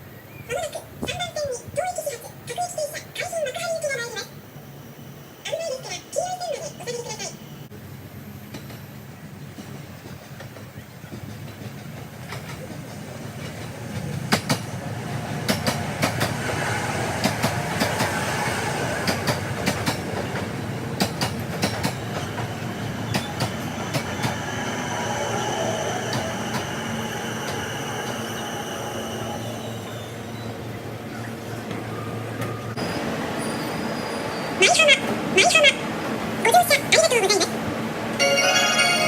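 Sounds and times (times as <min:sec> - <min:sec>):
train rumble: 0:00.0 - 0:39.0
train wheels clicking over rail joints: 0:08.5 - 0:18.4, 0:19.0 - 0:24.5.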